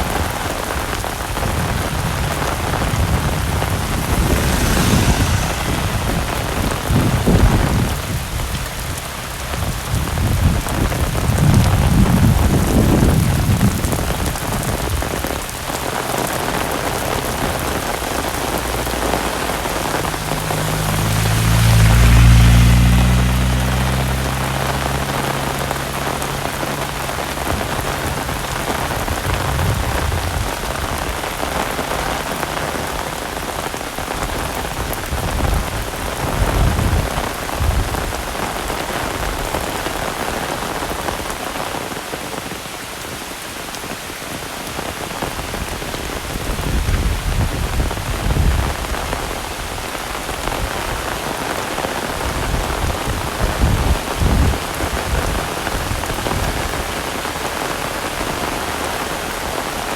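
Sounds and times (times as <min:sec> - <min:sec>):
heavy rain falling: 0:00.0 - 0:59.9
low rumbles: 0:00.4 - 0:39.5.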